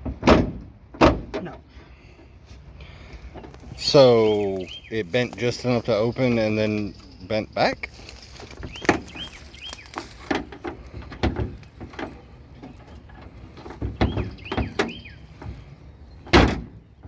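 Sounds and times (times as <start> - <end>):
car door thunking against frame: 0.0 - 1.6, 9.9 - 16.8
bird chirping: 3.3 - 10.5, 12.2 - 17.0.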